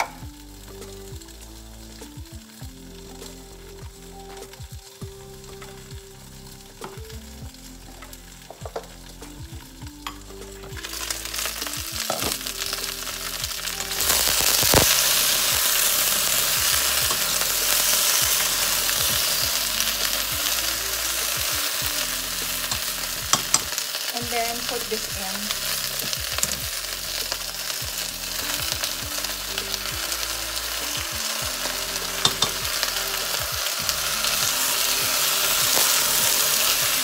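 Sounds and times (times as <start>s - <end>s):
okra sizzling in oil: 0.0s - 37.0s
spoon stirring in pot: 22.6s - 23.8s, 31.7s - 32.8s.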